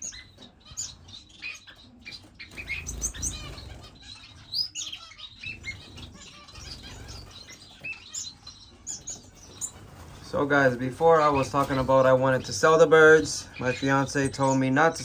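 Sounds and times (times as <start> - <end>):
finches chirping: 0.0 - 15.0
wings fluttering: 1.8 - 13.8.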